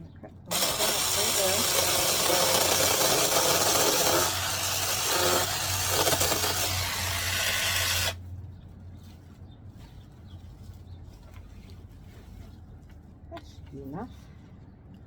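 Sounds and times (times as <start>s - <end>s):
mini chainsaw cutting branch: 0.5s - 8.2s.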